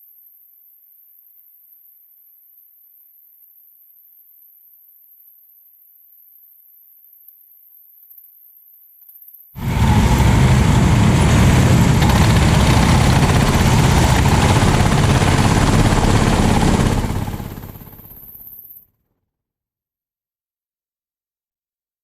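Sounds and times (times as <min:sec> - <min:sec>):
kart engine running rough: 0:09.6 - 0:18.3.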